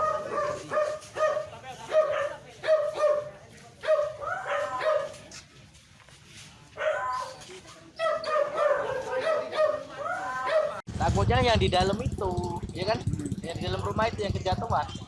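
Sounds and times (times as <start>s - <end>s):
dog barking: 0.0s - 5.2s, 6.8s - 7.4s, 8.0s - 10.8s.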